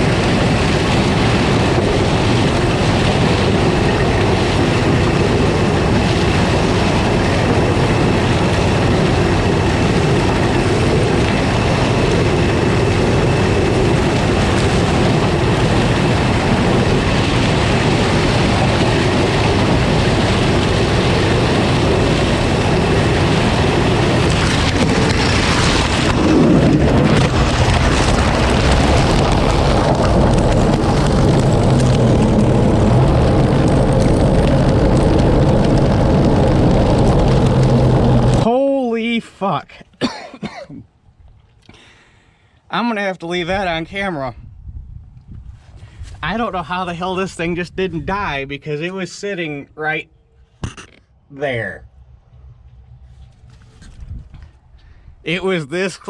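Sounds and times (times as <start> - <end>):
combine harvester running: 0.0 - 39.1.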